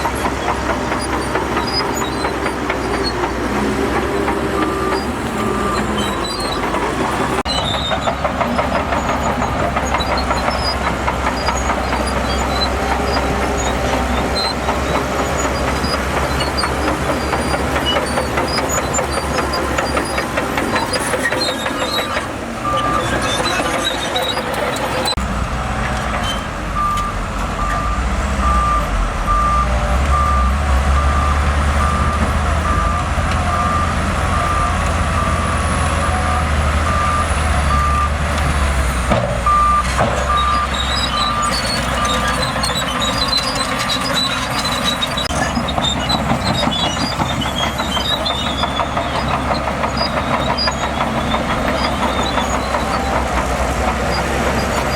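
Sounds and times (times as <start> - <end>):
diesel engine running: 0.0 - 54.9
reversing alarm beeping: 26.8 - 38.2, 39.4 - 43.4.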